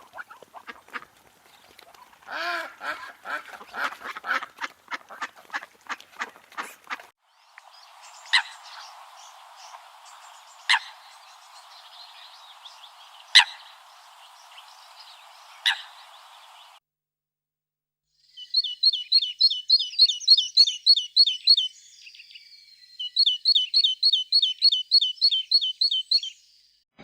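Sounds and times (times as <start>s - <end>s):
ducks quacking: 0.0s - 1.2s, 1.9s - 7.1s
background hiss: 6.8s - 16.8s.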